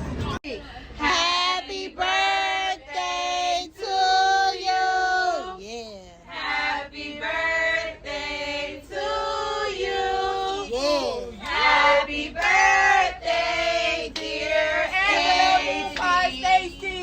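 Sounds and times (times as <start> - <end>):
high voices singing together: 6.3 - 17.0.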